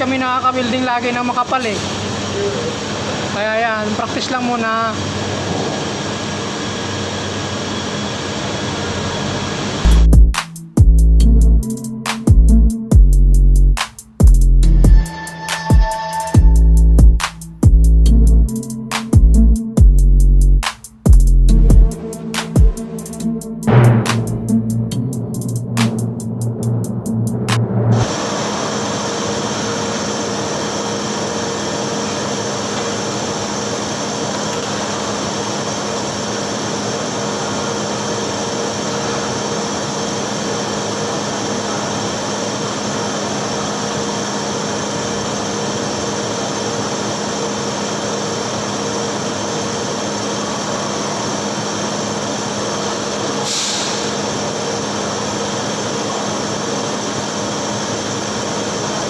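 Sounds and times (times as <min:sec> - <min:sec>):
welding arc hissing: 0:42.0 - 0:59.0.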